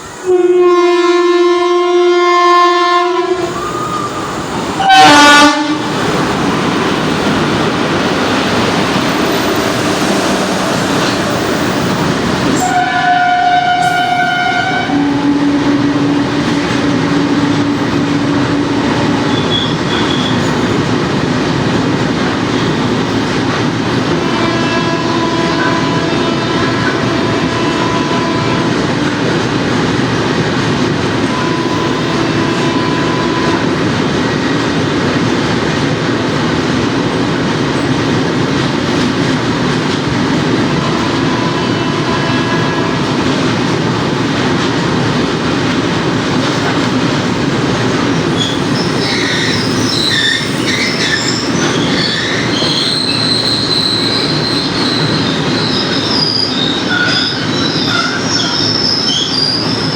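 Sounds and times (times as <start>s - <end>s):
train wheels rumbling on rails: 0.0s - 59.9s
high-pitched wheel squeal: 19.3s - 20.6s, 48.3s - 59.9s.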